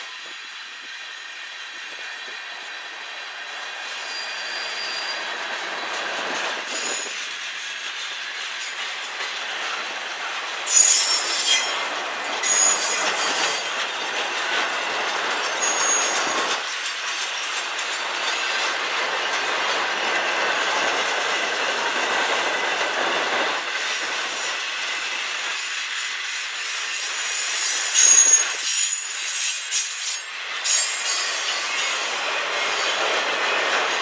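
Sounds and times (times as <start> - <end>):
train wheels rolling on rails: 0.0 - 34.0
high-pitched wheel squeals: 3.8 - 5.4, 10.7 - 11.8, 12.4 - 13.7, 15.6 - 16.5, 27.4 - 31.9.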